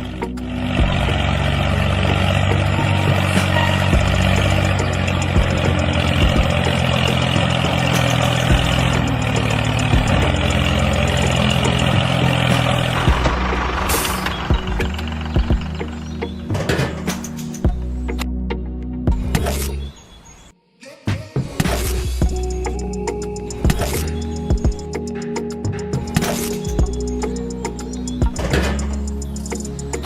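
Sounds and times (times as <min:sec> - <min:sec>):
small engine idling: 0:00.0 - 0:16.4.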